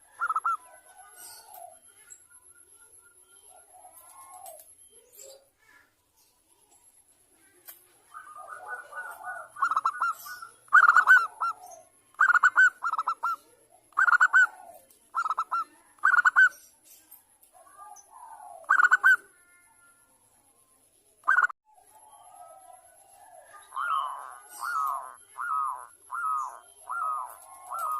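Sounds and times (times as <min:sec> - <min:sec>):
dove cooing: 0:00.0 - 0:02.1, 0:03.4 - 0:05.4, 0:07.4 - 0:16.6, 0:17.5 - 0:19.6, 0:21.3 - 0:27.9.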